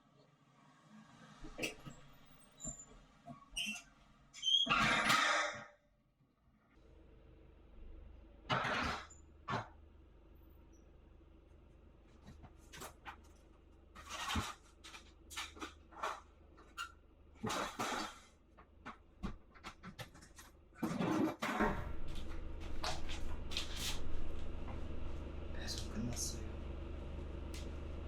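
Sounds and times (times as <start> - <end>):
rustles and knocks of handling: 12.0 - 16.8
steady low hum: 21.6 - 28.0.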